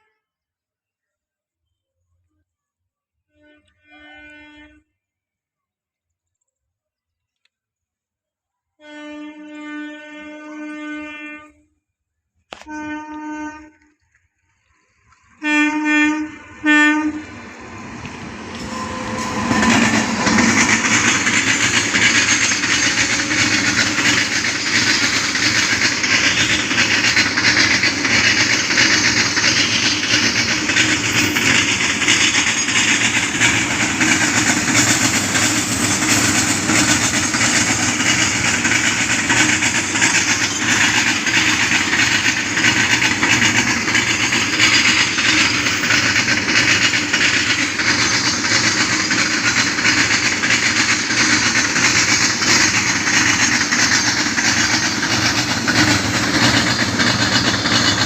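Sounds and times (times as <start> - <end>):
wagon wheels rattling over rails: 18.2 - 58.0.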